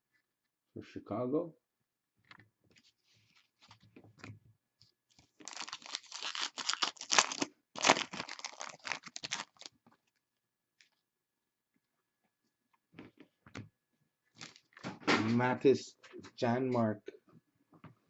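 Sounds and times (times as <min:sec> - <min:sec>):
foil wrapper crinkling and tearing: 0:05.2 - 0:09.8.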